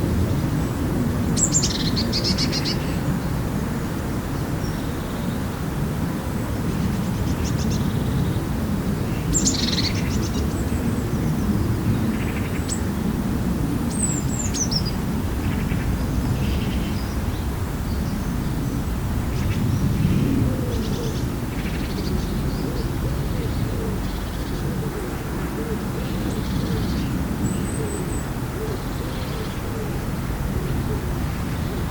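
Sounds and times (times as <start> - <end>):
steady low rumble: 9.9 - 31.9
birds chirping: 13.9 - 31.9.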